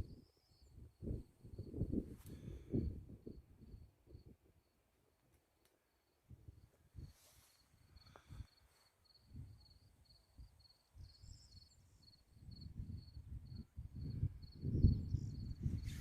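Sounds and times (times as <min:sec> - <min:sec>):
cricket chirping: 0:07.0 - 0:16.0.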